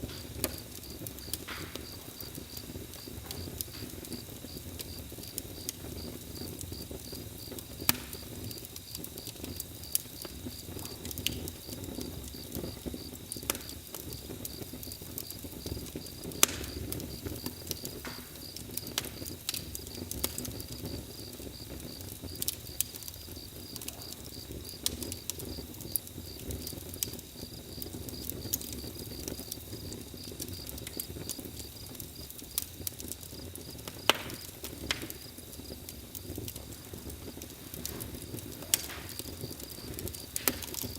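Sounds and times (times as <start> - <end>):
campfire crackling and popping: 0.0 - 40.9
cricket chirping: 37.8 - 40.9.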